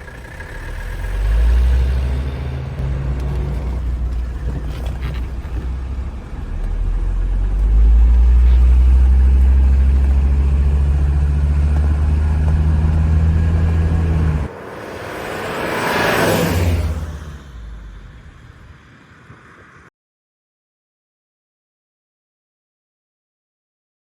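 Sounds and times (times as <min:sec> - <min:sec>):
diesel engine rumbling: 0:00.0 - 0:19.9
rising rush: 0:11.6 - 0:19.9.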